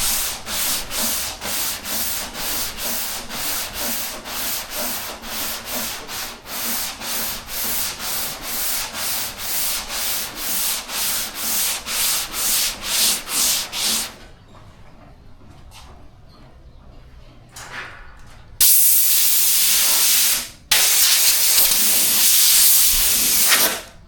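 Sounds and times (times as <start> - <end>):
sandpaper rubbing back and forth: 0.0 - 14.1, 18.6 - 23.8.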